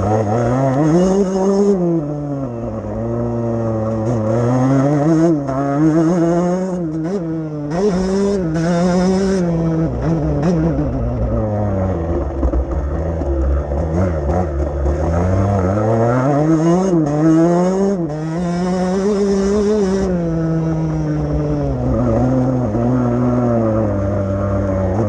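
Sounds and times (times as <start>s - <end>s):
motocross bike engine revving: 0.0s - 25.0s.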